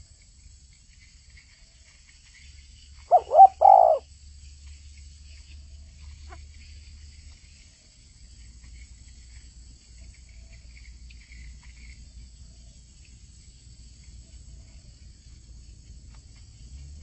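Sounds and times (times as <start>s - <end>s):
steady low hum: 0.0s - 17.0s
faint high chirps: 3.0s - 4.0s.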